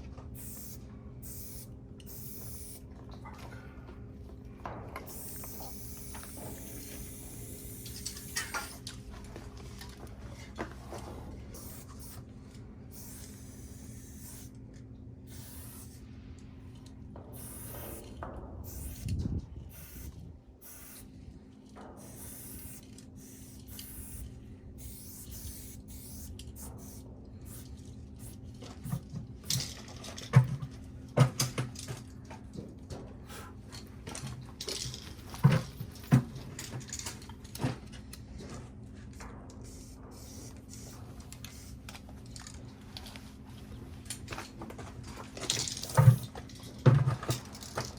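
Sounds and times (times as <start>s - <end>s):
spray paint can hissing: 0.4s - 2.8s, 5.1s - 8.8s, 11.6s - 12.2s, 12.9s - 14.5s, 15.3s - 16.0s, 17.4s - 19.1s, 19.7s - 21.1s, 22.0s - 29.6s, 39.7s - 41.8s.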